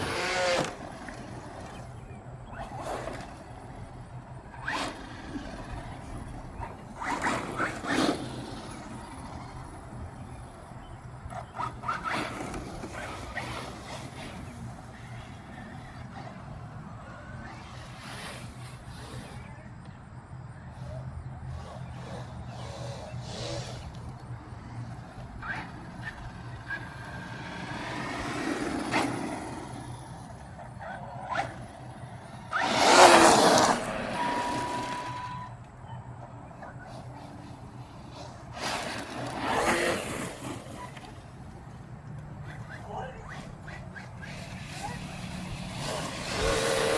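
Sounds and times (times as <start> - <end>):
tyre noise: 0.0 - 19.9, 20.8 - 46.9
electric motor whine: 0.0 - 20.0, 20.6 - 35.8, 36.5 - 46.9.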